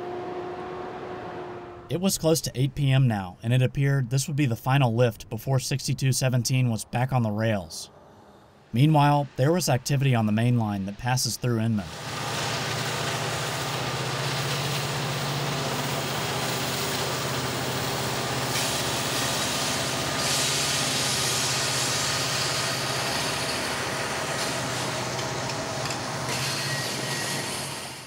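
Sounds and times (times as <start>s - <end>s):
diesel locomotive drone: 0.0s - 2.0s, 7.4s - 28.0s
steel wheels on rails: 11.9s - 28.0s.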